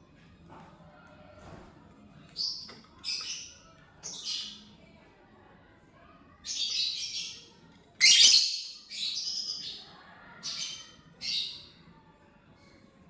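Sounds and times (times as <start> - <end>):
lovebird chirping and squawking: 8.0 - 9.6.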